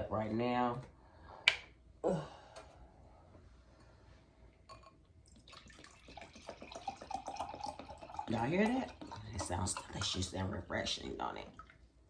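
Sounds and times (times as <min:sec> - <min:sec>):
juice glugging into a cup: 0:04.7 - 0:11.9.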